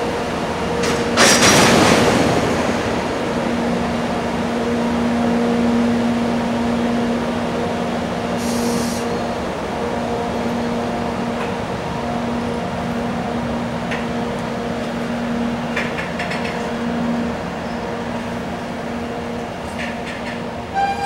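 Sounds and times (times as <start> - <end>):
freight train rumble: 0.0 - 21.0
air hiss: 8.4 - 9.1.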